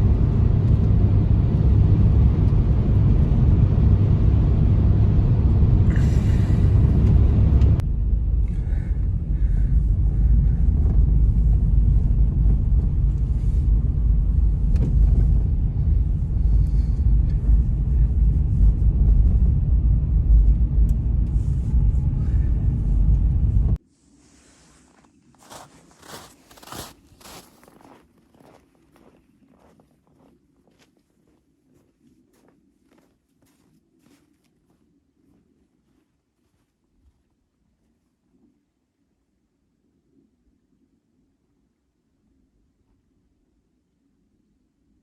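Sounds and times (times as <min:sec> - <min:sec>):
blizzard wind on microphone: 0:00.0 - 0:25.2.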